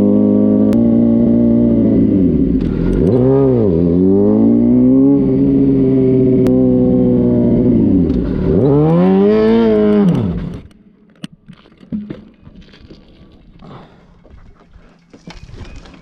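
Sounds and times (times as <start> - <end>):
motorcycle engine at high revs: 0.0 - 10.8.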